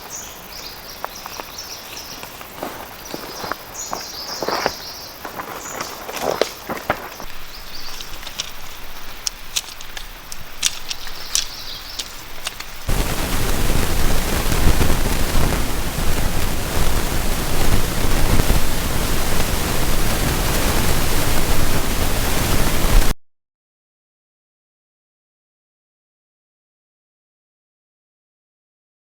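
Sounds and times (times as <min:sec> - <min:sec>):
heavy steady rain: 0:00.0 - 0:23.2.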